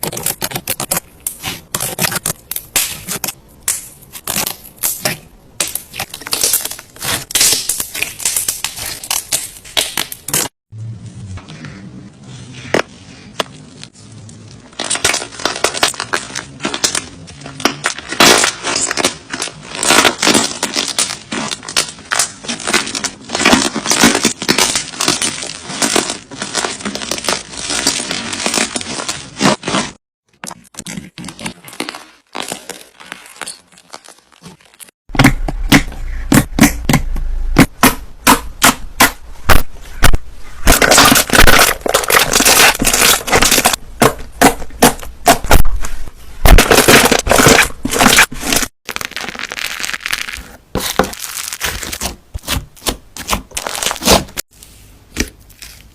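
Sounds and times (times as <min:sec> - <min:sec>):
slime crackling and popping: 0:00.0 - 0:10.5, 0:14.8 - 0:29.9, 0:39.5 - 0:45.8, 0:46.4 - 0:54.4.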